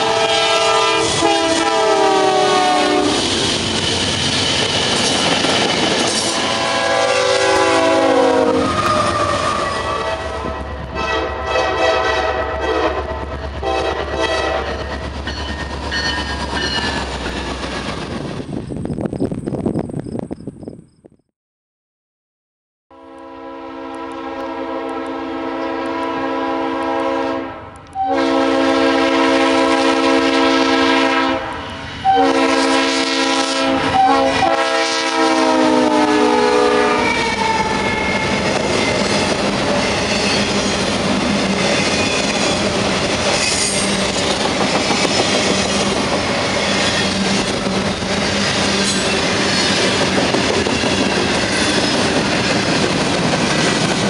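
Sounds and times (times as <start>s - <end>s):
locomotive air horn blasts: 0.0s - 3.4s, 6.2s - 14.8s, 22.9s - 38.2s
train rumbling by: 0.0s - 20.7s, 23.6s - 54.0s.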